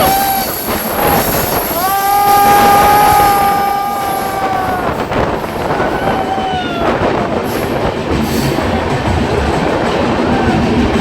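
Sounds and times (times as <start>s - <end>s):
train wheels squealing on rail: 0.0s - 8.8s
train coach rumbling on track: 0.0s - 11.0s.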